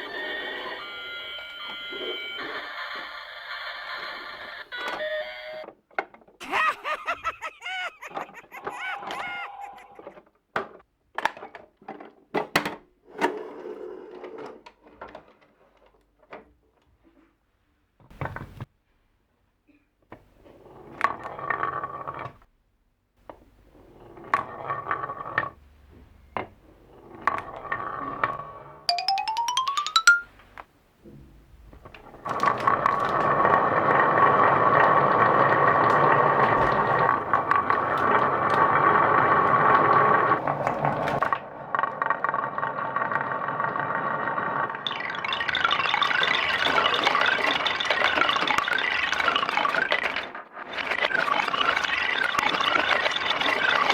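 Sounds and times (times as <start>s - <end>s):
chime notes: 28.9s - 30.3s
marbles clacking on wooden run: 32.2s - 41.2s, 44.7s - 53.9s.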